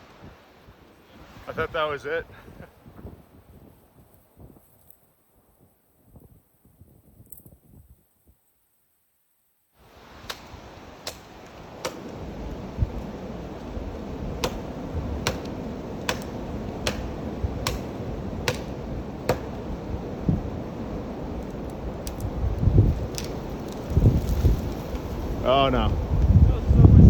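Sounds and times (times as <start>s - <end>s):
blizzard wind on microphone: 0.0s - 4.8s, 9.8s - 27.0s
axe chopping tree trunk: 10.2s - 12.2s, 14.4s - 19.6s, 23.1s - 23.4s.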